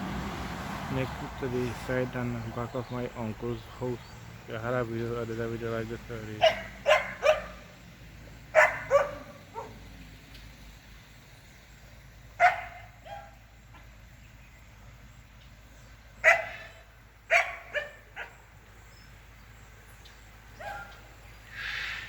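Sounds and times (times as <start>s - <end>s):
dog barking: 6.4s - 7.7s, 8.5s - 9.8s, 12.4s - 13.4s, 16.2s - 18.4s, 20.6s - 21.0s.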